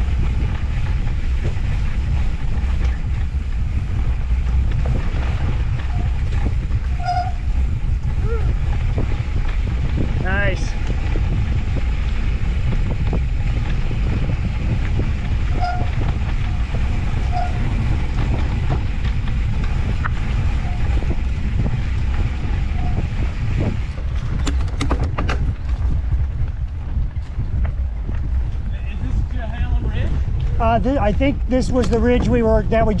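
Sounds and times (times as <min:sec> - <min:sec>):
tyres rolling on dirt: 0:00.0 - 0:33.0
wind buffeting microphone: 0:00.0 - 0:33.0
clicks and rattles: 0:23.9 - 0:25.9.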